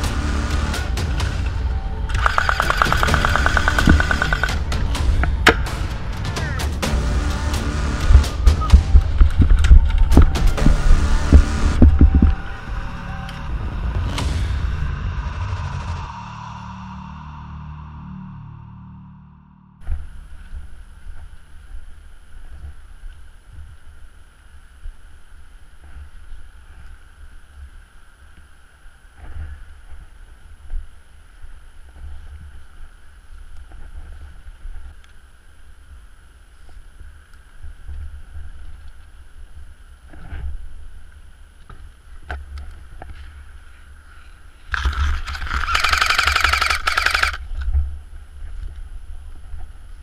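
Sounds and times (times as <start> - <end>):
camera handling noise: 2.1 - 4.6, 44.7 - 47.6
clicks: 2.1 - 4.6
wind rumble on microphone: 8.2 - 17.1, 47.4 - 50.0
loud noisy burst: 44.8 - 47.4.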